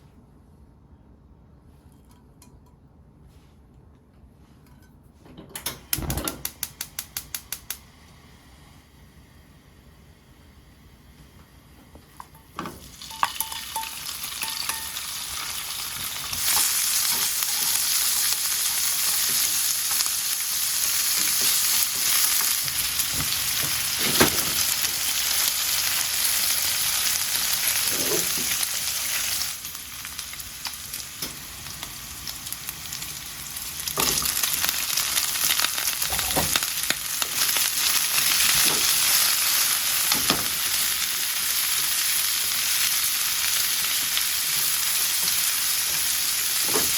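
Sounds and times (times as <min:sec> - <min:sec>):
food sizzling in a frying pan: 0:12.5 - 0:46.9.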